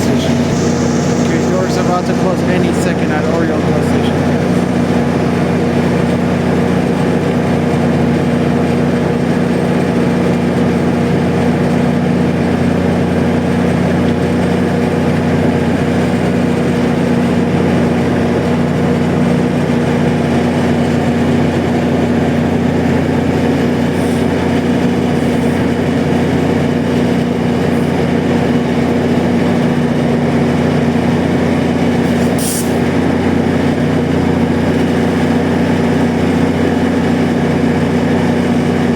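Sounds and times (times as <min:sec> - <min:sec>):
brief high hiss: 0:00.0 - 0:04.7, 0:23.8 - 0:24.4, 0:32.0 - 0:32.9
diesel locomotive idling: 0:00.0 - 0:38.9.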